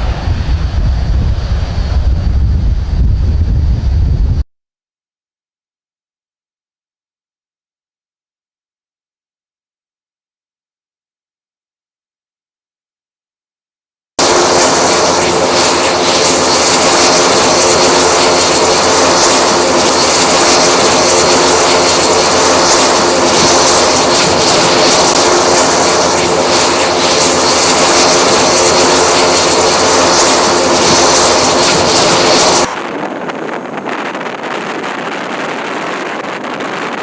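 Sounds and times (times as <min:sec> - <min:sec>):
military aircraft engines droning: 0:00.0 - 0:04.4, 0:14.2 - 0:37.0.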